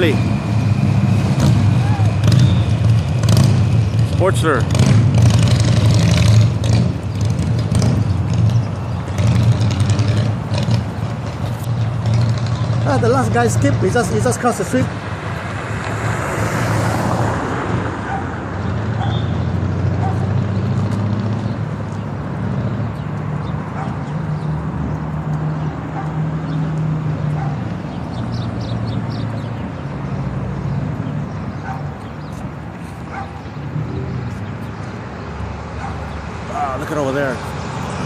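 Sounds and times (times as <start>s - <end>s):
engines running: 0.0s - 38.0s
dog barking: 18.0s - 18.4s, 19.0s - 19.3s, 20.0s - 20.4s, 23.7s - 24.1s, 25.9s - 26.2s, 27.3s - 27.7s, 31.6s - 31.9s, 33.1s - 33.4s, 35.8s - 36.1s.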